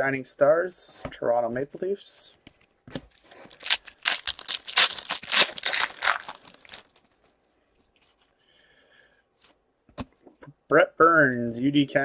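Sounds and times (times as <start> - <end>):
foil wrapper crinkling and tearing: 3.1 - 7.3.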